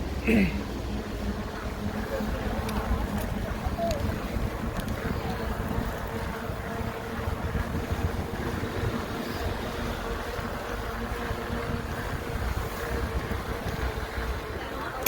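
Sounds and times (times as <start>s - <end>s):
wind buffeting microphone: 0.9s - 15.0s.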